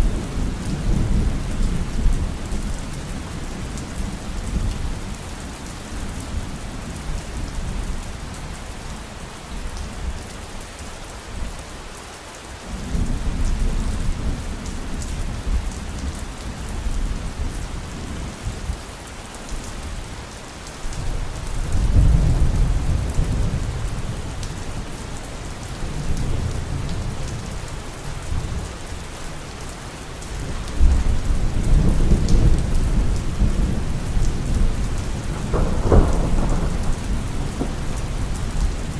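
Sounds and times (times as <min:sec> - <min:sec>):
heavy rain: 0:00.0 - 0:38.9
thunder rumbling: 0:30.4 - 0:38.9.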